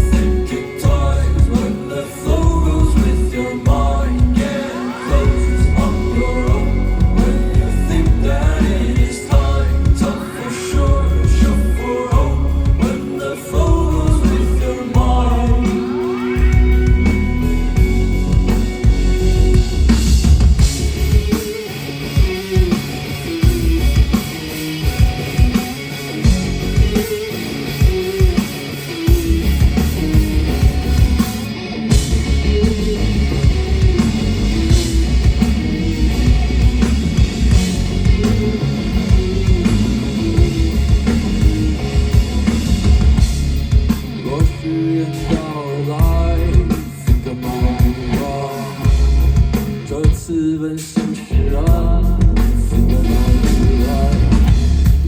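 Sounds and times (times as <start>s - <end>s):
person singing: 0.0s - 17.1s, 44.2s - 49.0s, 49.8s - 54.6s
repeating guitar line: 0.0s - 50.6s, 51.2s - 55.0s
rock band playing: 0.0s - 55.0s.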